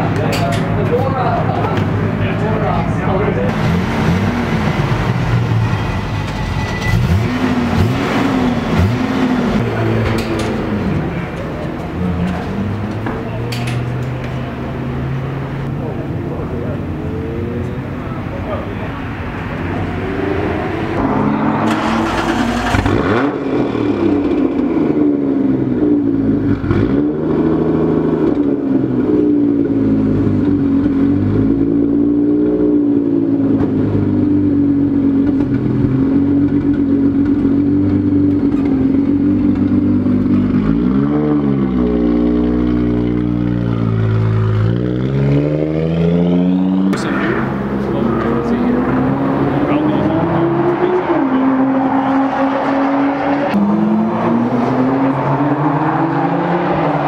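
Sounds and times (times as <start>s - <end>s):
car engine idling: 0.0s - 26.6s, 46.8s - 51.7s.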